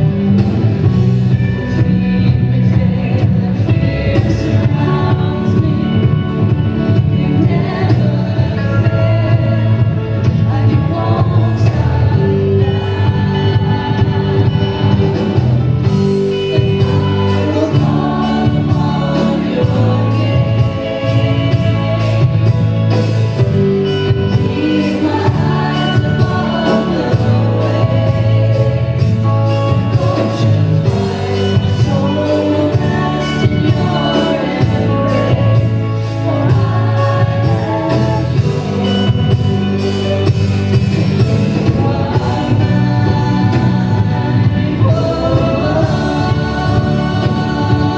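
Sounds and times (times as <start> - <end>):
singers singing a hymn: 0.0 - 47.9
steady drum beat: 0.0 - 47.9
worship band playing: 0.0 - 47.9.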